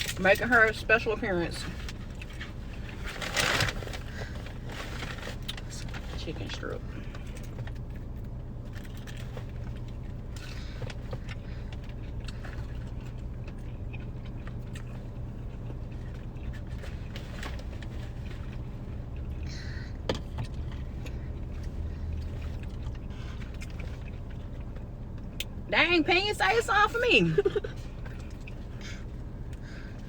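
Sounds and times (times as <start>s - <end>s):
car idling hum: 0.0s - 30.0s
crunchy food being eaten: 7.3s - 25.5s.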